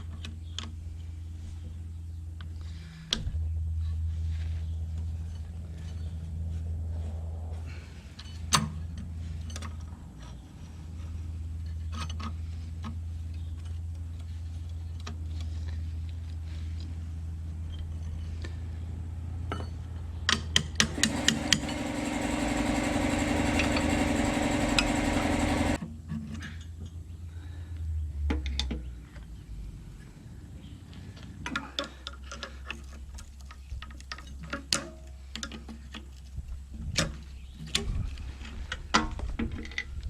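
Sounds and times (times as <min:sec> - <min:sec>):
low hum: 0:00.9 - 0:20.2
small motor running: 0:20.8 - 0:25.8.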